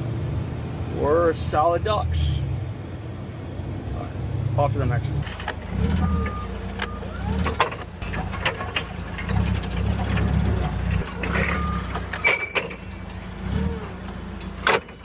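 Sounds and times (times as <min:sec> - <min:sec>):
truck engine rumbling: 0:00.0 - 0:15.0
rattles and clicks: 0:05.2 - 0:15.0.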